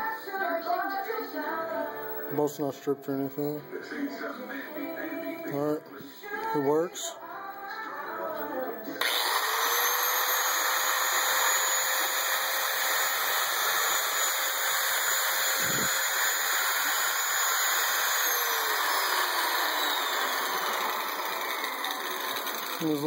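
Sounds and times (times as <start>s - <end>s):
angle grinder whining: 9.0s - 23.0s.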